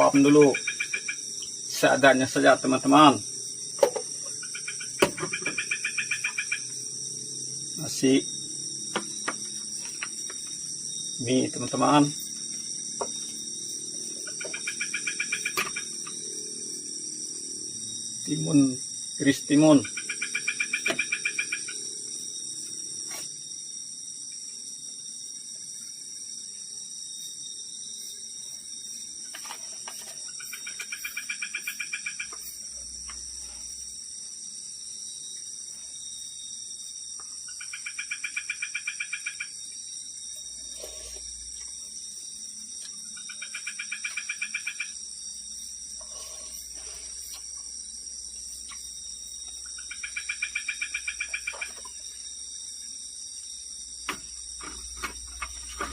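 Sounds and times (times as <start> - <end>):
night insects droning: 0.0 - 55.9
animal pulsed trilling call: 14.4 - 16.6, 19.8 - 21.9.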